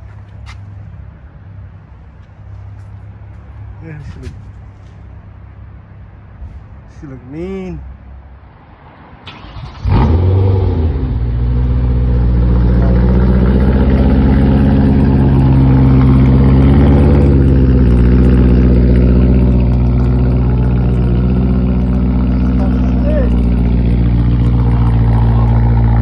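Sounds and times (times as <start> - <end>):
car engine starting and idling: 9.2 - 26.0.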